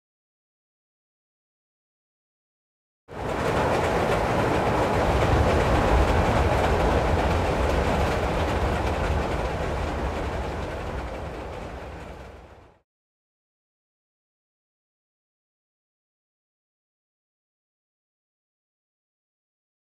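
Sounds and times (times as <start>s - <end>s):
train rumbling on tracks: 3.1s - 12.8s.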